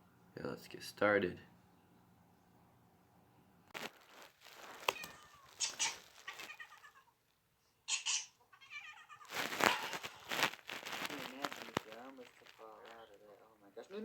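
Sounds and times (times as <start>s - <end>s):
cat meowing: 4.8s - 7.2s, 7.9s - 10.1s.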